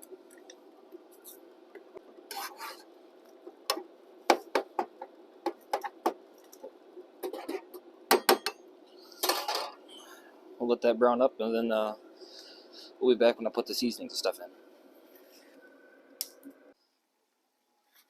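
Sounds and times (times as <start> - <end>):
utensil scraping a pan: 2.3 - 2.9.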